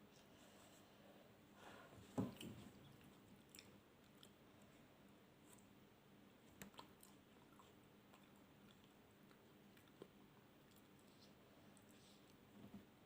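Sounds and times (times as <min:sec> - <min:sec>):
low room hiss: 0:00.0 - 0:13.0
chewing food: 0:02.2 - 0:12.4.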